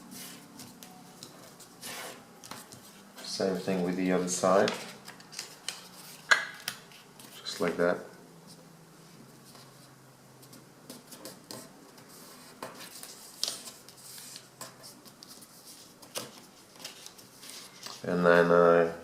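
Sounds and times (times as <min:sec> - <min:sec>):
paper rustling and crackling: 0:10.5 - 0:18.2.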